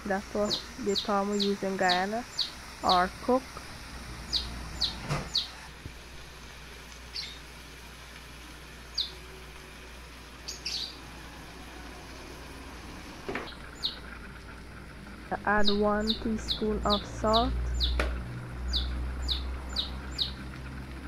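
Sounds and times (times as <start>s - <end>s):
bird chirping: 4.3s - 5.5s, 7.1s - 7.4s, 8.9s - 9.2s, 10.4s - 11.0s, 13.4s - 14.0s, 17.7s - 18.0s, 18.7s - 20.4s.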